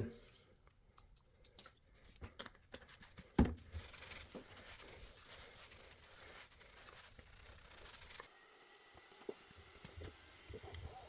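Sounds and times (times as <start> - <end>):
cloth wiping a textured plate: 3.7 - 8.3.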